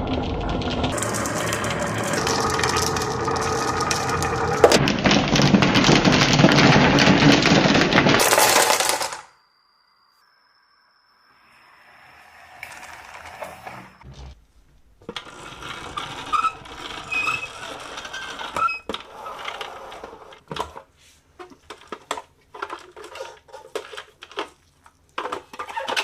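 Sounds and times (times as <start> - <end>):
marbles rattling down a marble run: 0.0 - 9.3, 15.2 - 20.1.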